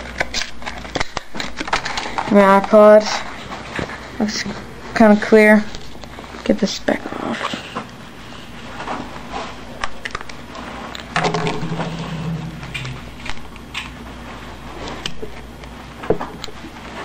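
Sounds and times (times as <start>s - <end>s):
low steady hum: 11.1s - 15.4s.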